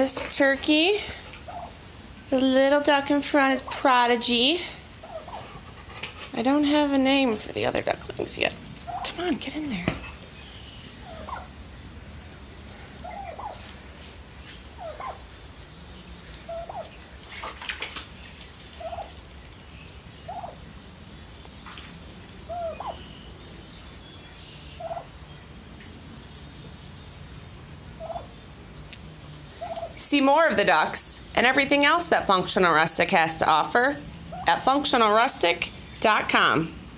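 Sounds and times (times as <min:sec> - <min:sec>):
turkey calling: 0:01.4 - 0:01.8, 0:05.0 - 0:05.5, 0:08.8 - 0:09.3, 0:10.1 - 0:11.6, 0:13.0 - 0:13.7, 0:14.7 - 0:15.4, 0:16.3 - 0:17.0, 0:18.8 - 0:19.2, 0:20.2 - 0:20.6, 0:22.5 - 0:23.2, 0:24.7 - 0:25.2, 0:27.9 - 0:28.4, 0:29.6 - 0:30.0.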